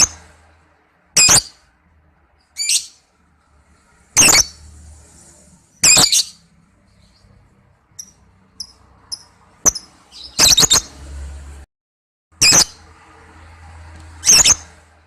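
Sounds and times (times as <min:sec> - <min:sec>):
lovebird shrill chirps: 0:01.2 - 0:01.6, 0:02.6 - 0:03.0, 0:04.2 - 0:04.6, 0:05.8 - 0:06.4, 0:08.0 - 0:10.9, 0:14.2 - 0:14.6.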